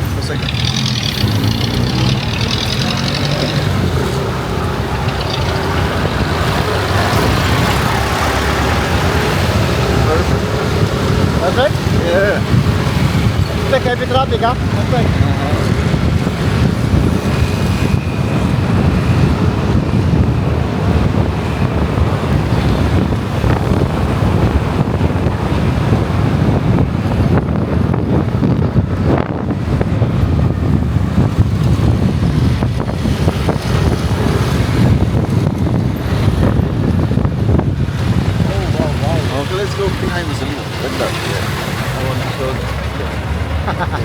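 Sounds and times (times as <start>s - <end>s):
motorcycle engine and road noise: 0.0s - 44.0s
wind buffeting microphone: 0.0s - 44.0s.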